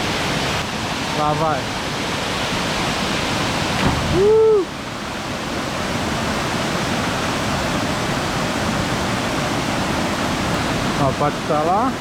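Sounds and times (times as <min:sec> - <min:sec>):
waterfall rushing: 0:00.0 - 0:12.0
person yelling: 0:04.1 - 0:04.7.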